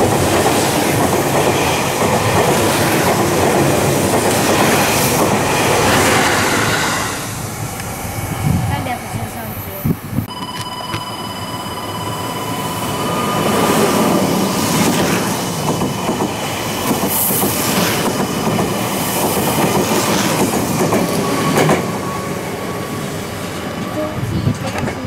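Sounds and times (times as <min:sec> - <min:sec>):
wheels rumbling on rail: 0:00.0 - 0:25.0.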